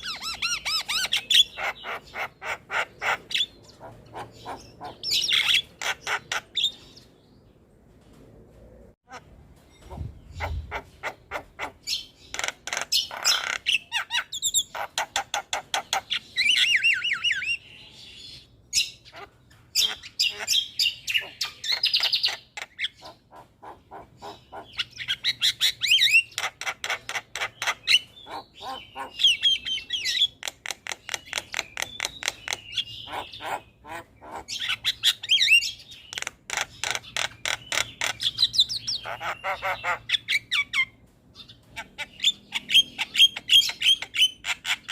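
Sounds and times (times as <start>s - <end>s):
myna harsh chattering calls: 9.1s - 16.6s, 19.1s - 29.8s.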